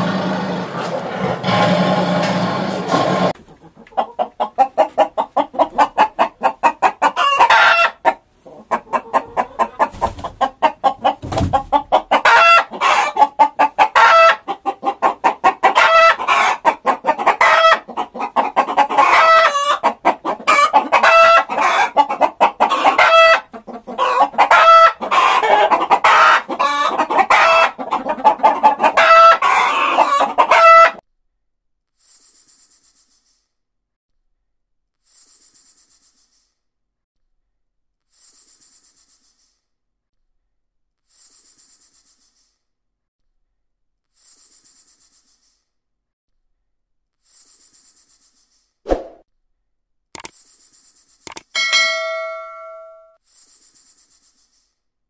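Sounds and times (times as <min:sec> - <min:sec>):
rooster clucking and calling: 0:03.3 - 0:31.0.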